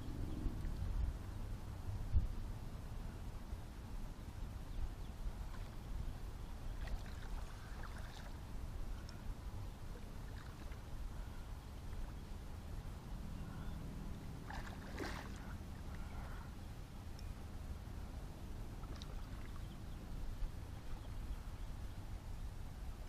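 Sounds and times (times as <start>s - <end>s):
low steady rumble: 0.0s - 23.0s
water lapping against boat hull: 6.7s - 9.2s, 9.9s - 10.9s, 14.4s - 16.5s.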